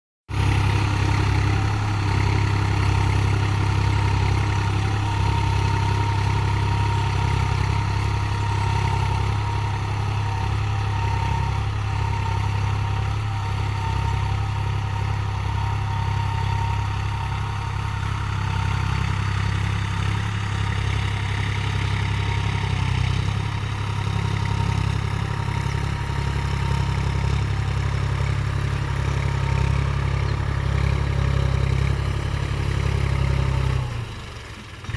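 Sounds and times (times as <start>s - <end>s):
tractor diesel engine running: 0.3s - 34.9s.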